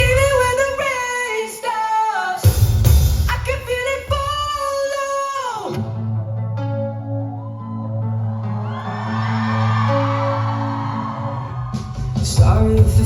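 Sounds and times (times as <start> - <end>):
heavy drums and bass: 0.0 - 0.8, 2.4 - 4.3, 11.7 - 13.0
band accompaniment: 0.0 - 1.0, 11.4 - 13.0.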